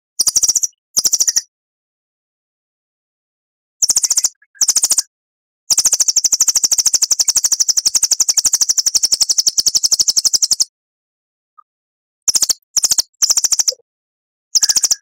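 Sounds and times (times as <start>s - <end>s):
songbird rapid trill: 3.8s - 5.1s, 5.7s - 10.7s, 12.3s - 13.8s, 14.6s - 15.0s.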